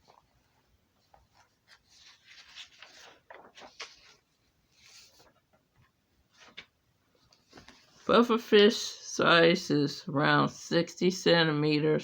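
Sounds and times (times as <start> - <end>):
rustling and scratching: 0.0 - 8.1.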